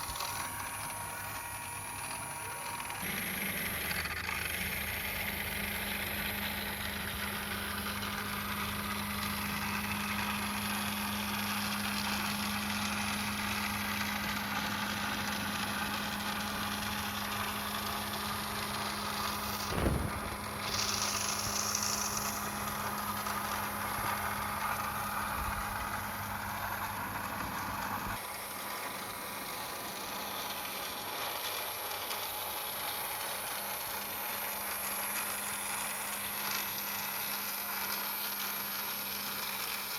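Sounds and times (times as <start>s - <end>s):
toy car electric motor humming: 0.0s - 27.6s
low rumble: 19.4s - 22.2s
sharp knock: 19.6s - 22.4s.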